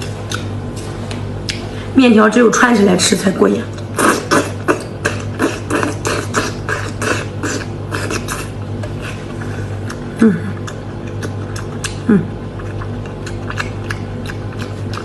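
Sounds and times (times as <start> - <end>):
soft mouth sounds: 3.7 - 15.0.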